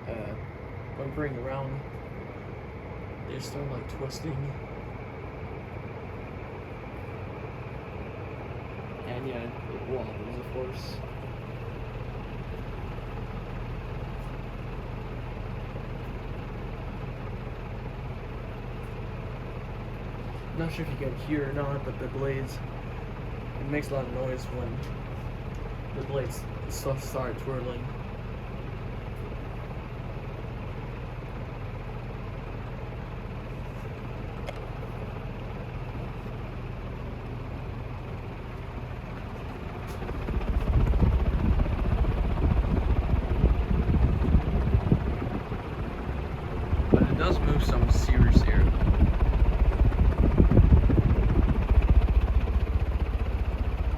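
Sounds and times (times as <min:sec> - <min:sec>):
ceiling fan motor hum: 0:00.0 - 0:53.9
rushing air from fan blades: 0:19.8 - 0:27.9, 0:38.0 - 0:53.9.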